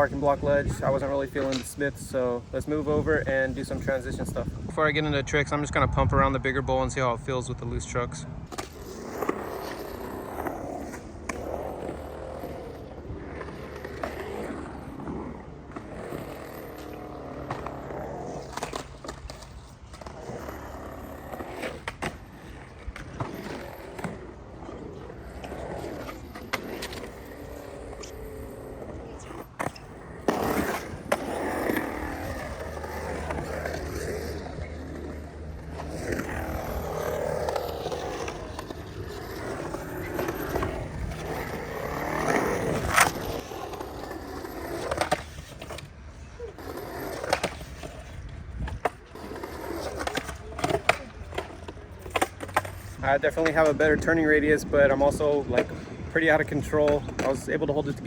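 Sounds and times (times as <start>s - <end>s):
skateboard wheels rumbling: 0.0s - 58.0s.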